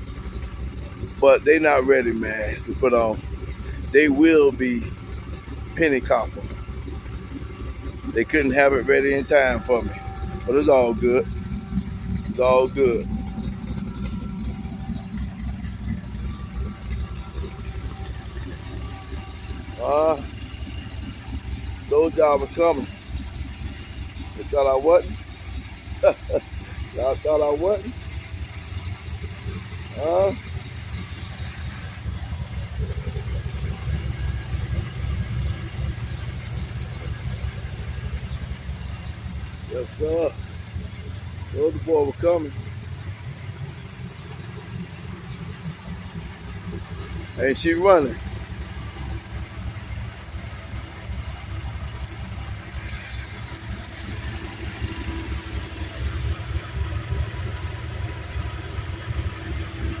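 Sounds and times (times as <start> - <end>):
car engine idling: 0.0 - 60.0.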